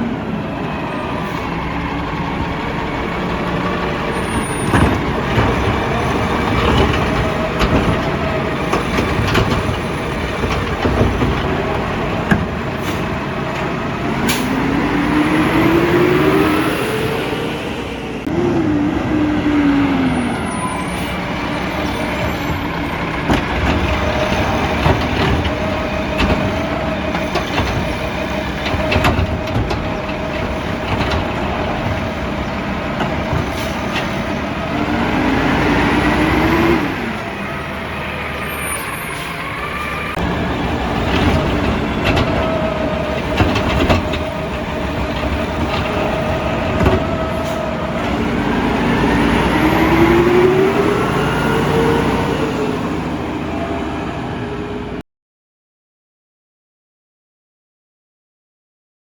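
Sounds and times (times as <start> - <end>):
truck engine revving: 0.0 - 55.0
knocks and clanks: 2.3 - 14.7, 21.3 - 36.8, 40.1 - 51.2.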